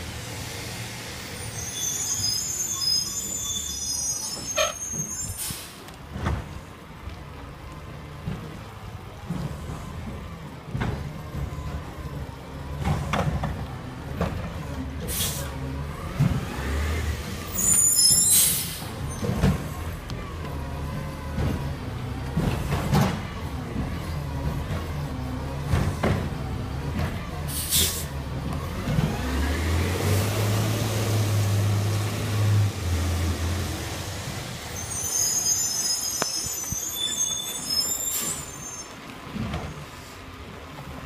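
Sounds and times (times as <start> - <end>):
garbage truck engine rumbling: 0.0 - 41.0
air brake hiss: 4.6 - 5.9, 15.1 - 15.5, 18.0 - 18.9, 27.5 - 28.1.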